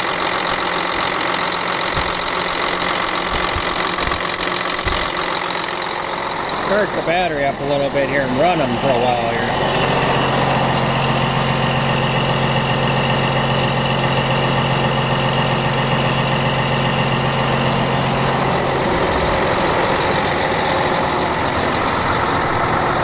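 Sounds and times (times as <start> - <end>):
diesel truck engine idling: 0.0 - 23.0
strong low hum: 5.8 - 23.0.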